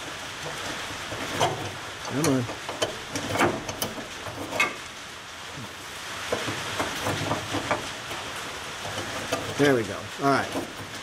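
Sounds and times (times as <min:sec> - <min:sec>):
heavy rain on building: 0:00.0 - 0:11.0.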